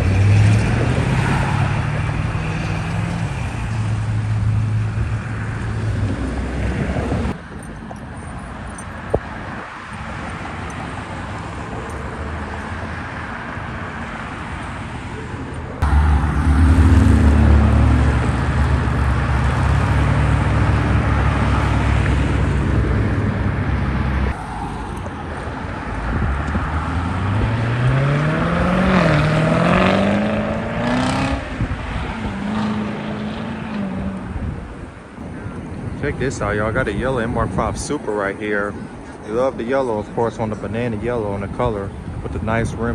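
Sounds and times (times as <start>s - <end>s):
engine revving: 0.0s - 7.4s, 15.8s - 24.4s, 25.8s - 34.5s
car engines idling: 0.0s - 42.9s.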